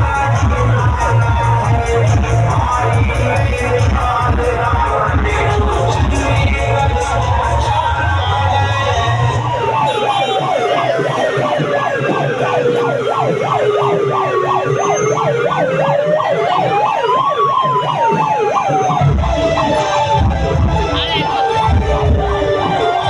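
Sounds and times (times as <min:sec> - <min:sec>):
siren wail: 0:00.0 - 0:23.0
siren yelp warbling: 0:04.5 - 0:21.8.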